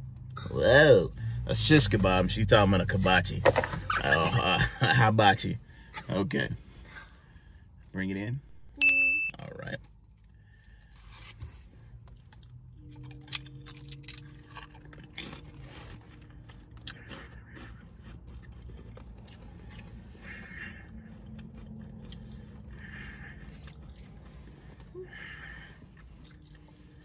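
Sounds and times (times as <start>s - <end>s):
low steady hum: 0.0s - 27.0s
crisps crunching while chewed: 9.6s - 27.0s.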